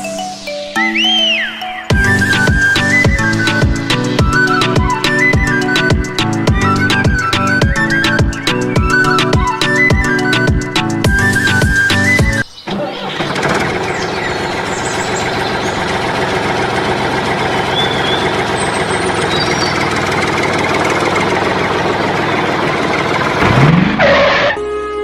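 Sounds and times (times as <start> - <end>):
engine running: 0.0 - 25.0
faint bird chirps: 0.6 - 1.9, 12.4 - 16.0, 17.7 - 20.1.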